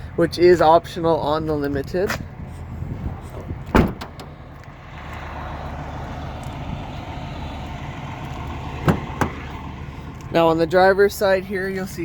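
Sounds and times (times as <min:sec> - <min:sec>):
vehicle low rumble: 0:00.0 - 0:12.0.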